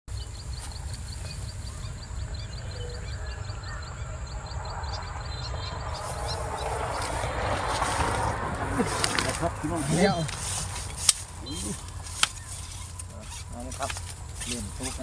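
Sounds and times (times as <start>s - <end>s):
wind rumble on microphone: 0.1s - 15.0s
rapid high-pitched chirps: 9.7s - 15.0s.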